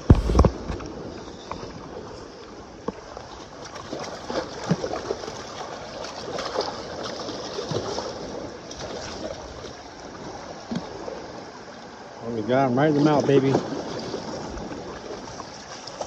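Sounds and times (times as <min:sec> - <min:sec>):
river water rushing: 0:00.0 - 0:16.0
fish splashing in water: 0:03.2 - 0:11.4.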